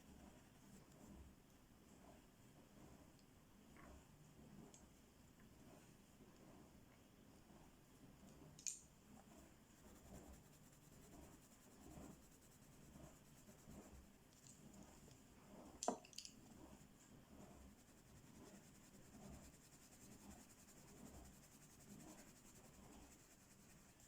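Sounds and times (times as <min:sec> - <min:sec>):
pencil scratching on paper: 0:09.3 - 0:15.1, 0:16.7 - 0:24.0.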